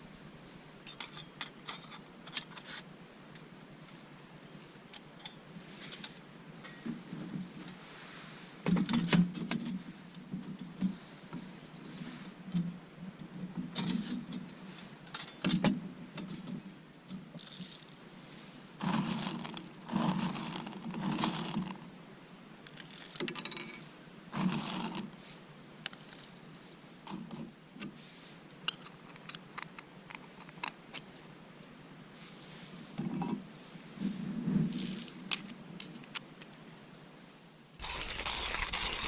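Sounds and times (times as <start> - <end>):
objects clattering and knocking: 8.7 - 11.0, 13.5 - 17.9, 18.8 - 21.8, 22.7 - 25.1.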